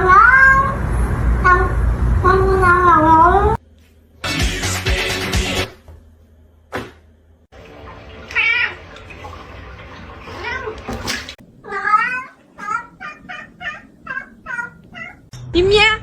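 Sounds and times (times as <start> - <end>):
cat meowing: 8.2 - 8.8, 11.6 - 15.3.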